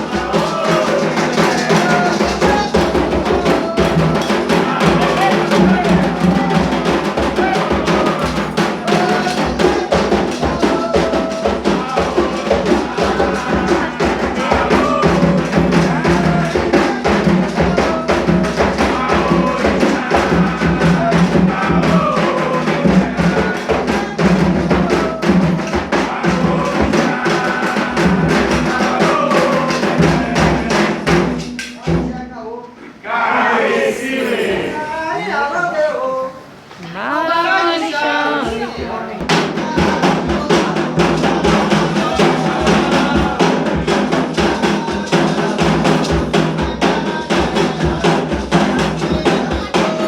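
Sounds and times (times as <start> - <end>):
struck bell percussion: 0.0 - 27.0
hand drums beating: 0.0 - 32.2, 38.4 - 50.0
voices singing: 0.0 - 50.0.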